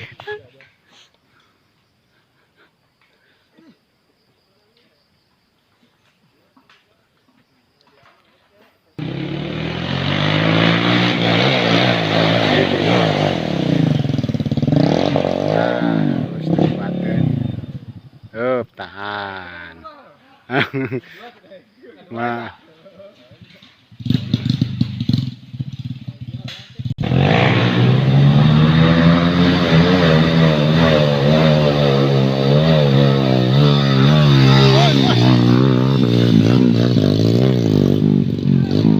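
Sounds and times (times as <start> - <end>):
motorcycle engine revving: 9.0 - 18.5, 23.4 - 38.9.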